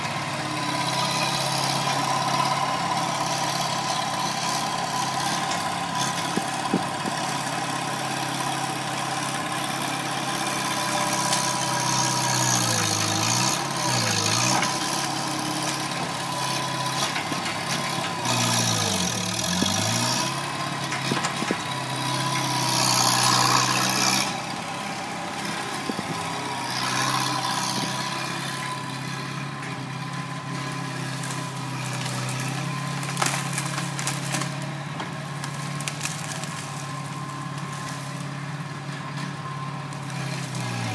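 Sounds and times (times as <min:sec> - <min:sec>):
loader engine whining: 0:00.0 - 0:40.9.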